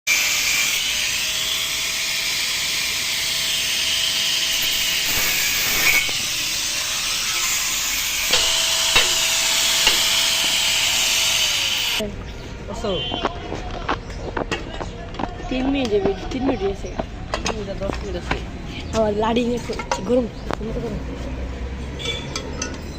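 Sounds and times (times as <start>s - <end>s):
compressor hissing: 1.0s - 12.0s.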